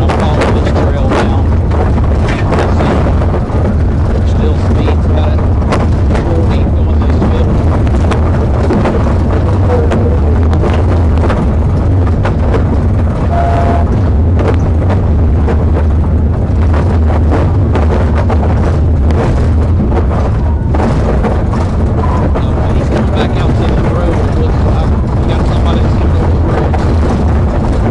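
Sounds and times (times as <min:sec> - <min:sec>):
car driving at high speed: 0:00.0 - 0:27.9
crackles and knocks: 0:00.0 - 0:27.9.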